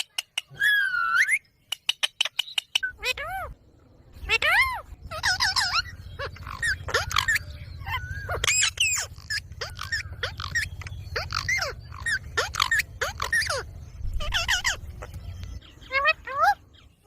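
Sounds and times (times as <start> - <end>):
parrot squawking and whistling: 0.5 - 1.4, 4.2 - 15.1
low steady hum: 2.9 - 17.0.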